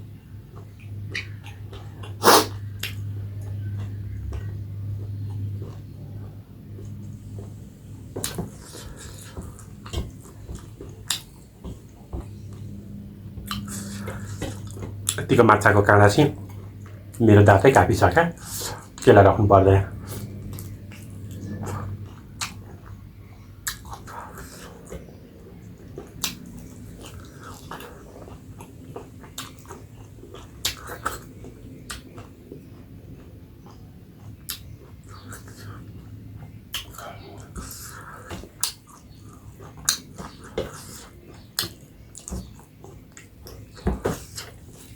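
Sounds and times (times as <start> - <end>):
steady low hum: 0.0 - 44.9
chewing and wet mouth sounds: 0.4 - 17.2, 19.9 - 44.9
person chewing and biting food: 13.5 - 15.2, 25.8 - 44.9.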